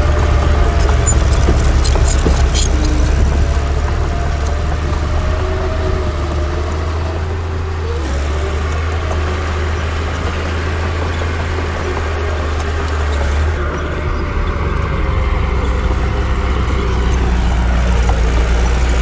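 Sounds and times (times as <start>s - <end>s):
diesel machinery engine drone: 0.0s - 19.0s
sharp metallic clanks: 0.3s - 4.0s.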